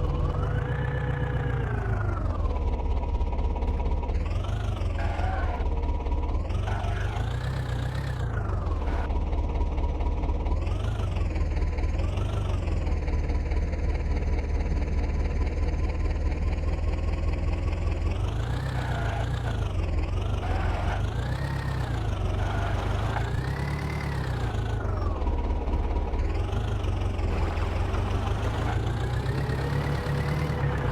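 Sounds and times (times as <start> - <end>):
tractor diesel engine revving: 3.5 - 9.1, 17.3 - 30.9.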